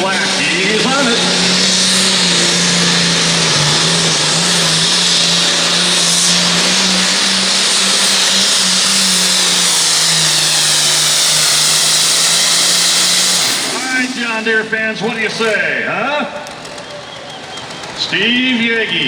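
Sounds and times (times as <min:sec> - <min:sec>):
tractor engine at full throttle: 0:00.0 - 0:19.0.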